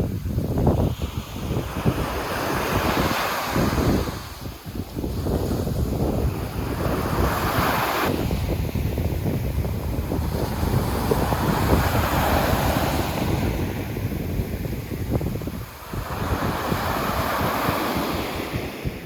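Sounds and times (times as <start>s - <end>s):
sea waves breaking on beach: 0.0s - 19.0s
wind rumble on microphone: 0.0s - 19.0s.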